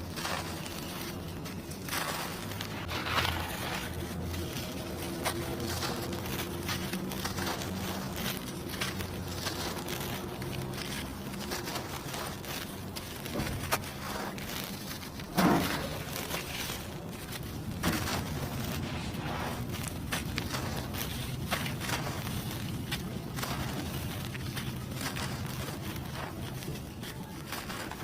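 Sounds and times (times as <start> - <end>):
dry cement crumbling: 0.0 - 28.0.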